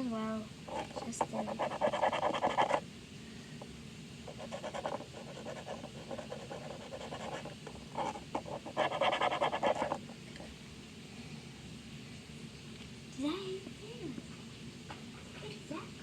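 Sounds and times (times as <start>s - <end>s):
marker scribbling on plastic: 0.7s - 2.8s, 4.3s - 10.0s.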